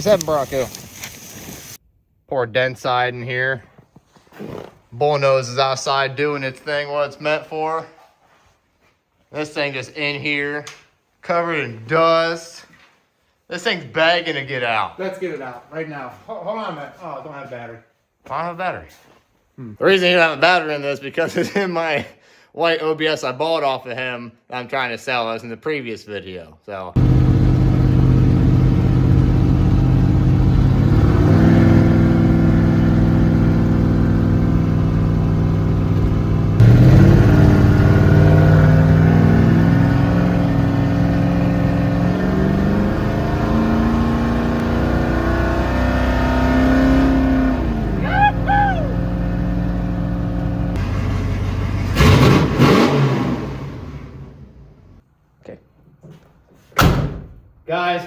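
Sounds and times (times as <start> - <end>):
engine accelerating and revving: 27.0 - 54.7
rising and falling squeals: 42.0 - 50.2.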